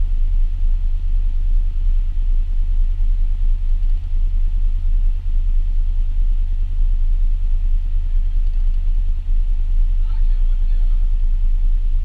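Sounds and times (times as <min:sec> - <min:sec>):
car engine idling: 0:03.2 - 0:11.9.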